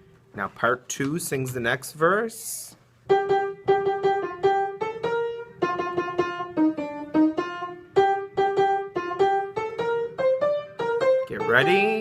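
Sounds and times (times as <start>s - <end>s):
piano playing notes: 3.0s - 12.0s.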